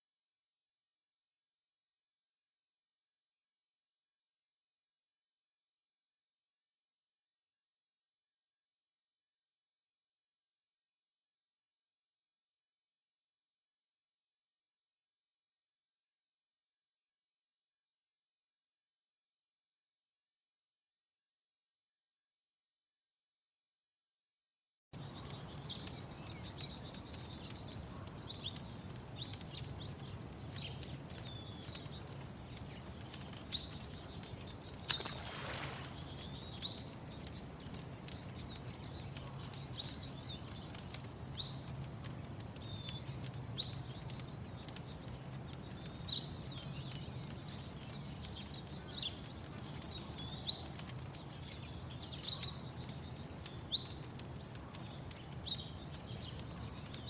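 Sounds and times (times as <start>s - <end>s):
faint crackles: 25.0s - 57.0s
small birds chirping: 25.0s - 57.0s.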